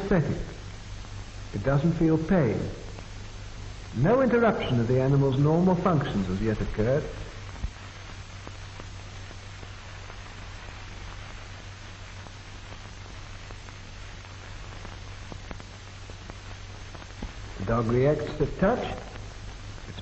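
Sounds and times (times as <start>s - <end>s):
faint crackles: 0.0s - 20.0s
film soundtrack hiss and hum: 0.0s - 20.0s
person narrating: 4.0s - 7.3s, 17.6s - 19.1s.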